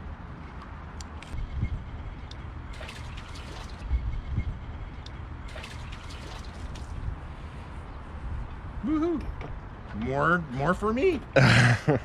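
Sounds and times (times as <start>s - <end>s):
liquid pouring and splashing: 2.7s - 3.9s, 5.5s - 7.0s.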